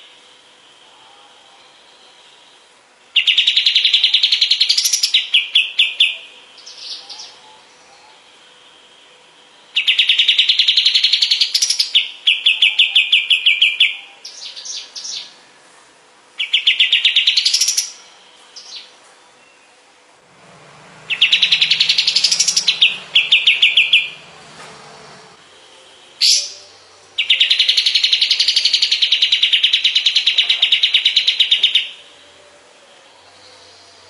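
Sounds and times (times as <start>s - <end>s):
bird singing trills: 1.0s - 15.4s, 16.4s - 19.8s, 20.4s - 34.0s.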